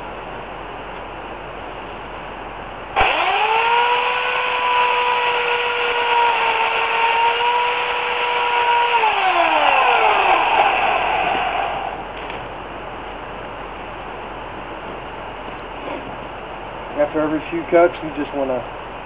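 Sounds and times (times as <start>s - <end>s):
electric chainsaw motor whine: 3.0s - 12.1s.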